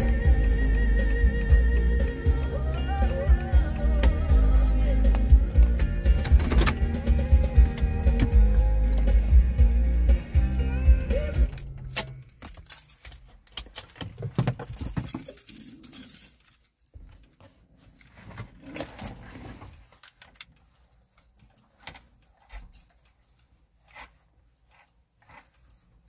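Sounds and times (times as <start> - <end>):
keys jangling: 0.0 - 17.1, 21.2 - 23.2.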